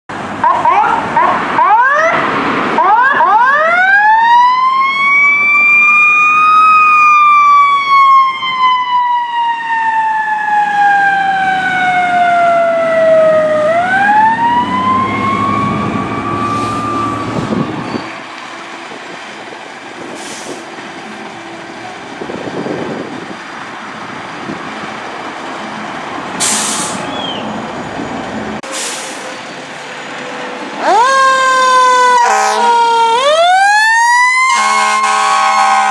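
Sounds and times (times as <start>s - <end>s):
fire engine siren winding: 2.8s - 18.0s, 30.8s - 35.9s
electronic siren yelp: 2.8s - 18.1s, 30.8s - 35.9s
truck air hisses: 16.4s - 17.7s, 20.0s - 20.8s, 26.4s - 27.4s, 28.6s - 30.0s.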